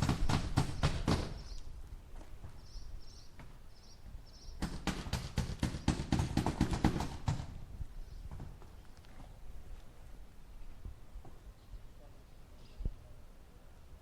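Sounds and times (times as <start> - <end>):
hammer driving nails into wood: 0.0 - 1.4, 4.6 - 7.5.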